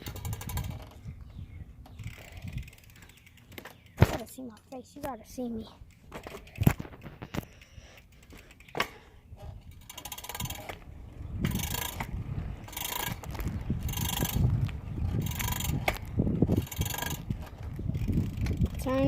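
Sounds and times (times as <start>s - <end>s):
bicycle freewheel ticking: 0.0s - 0.9s, 2.0s - 3.9s, 9.7s - 10.8s, 11.4s - 19.0s.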